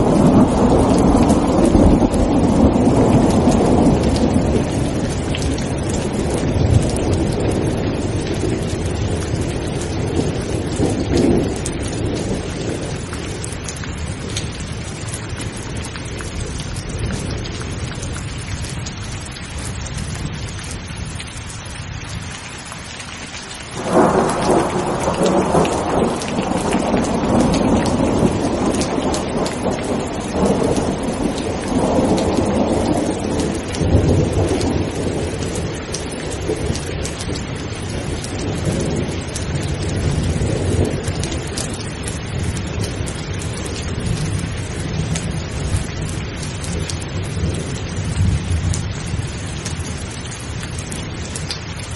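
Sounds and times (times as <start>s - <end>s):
loud thunderclap: 0.0s - 13.4s, 23.8s - 49.2s
thunder rumbling: 0.0s - 19.0s, 23.7s - 51.9s
heavy rain: 0.0s - 51.9s.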